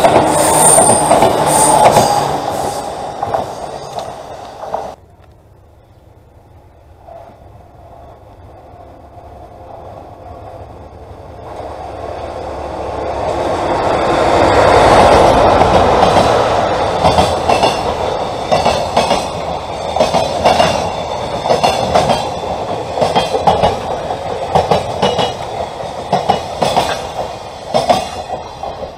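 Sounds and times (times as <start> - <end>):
train wheels clacking on rails: 0.0 - 5.0, 13.3 - 28.9
train rumble passing: 0.0 - 28.9.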